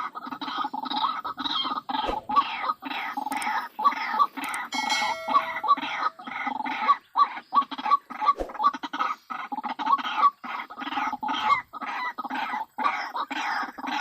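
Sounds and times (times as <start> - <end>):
bird harsh croaking calls: 0.0 - 14.0.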